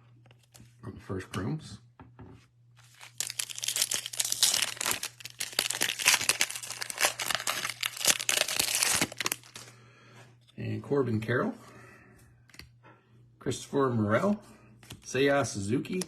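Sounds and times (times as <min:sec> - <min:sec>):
foil wrapper crinkling and tearing: 0:02.8 - 0:09.7.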